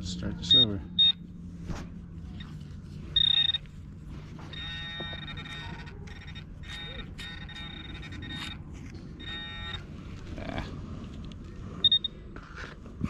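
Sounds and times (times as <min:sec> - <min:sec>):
metal detector beep: 0:00.4 - 0:01.2, 0:03.1 - 0:03.8, 0:04.4 - 0:09.9, 0:11.8 - 0:12.2.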